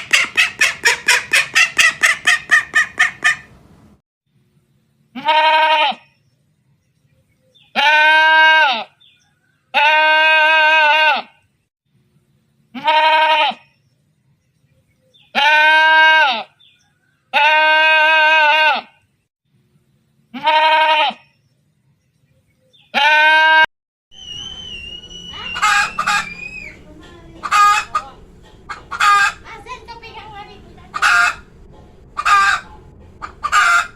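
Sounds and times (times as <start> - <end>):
farmyard noise: 0.0 - 3.7, 5.1 - 6.2, 7.4 - 11.5, 12.7 - 13.8, 14.9 - 19.1, 20.3 - 21.4, 22.5 - 33.9
sheep bleating: 5.2 - 6.0, 12.8 - 13.6, 20.4 - 21.2
high wavering animal call: 24.1 - 29.5.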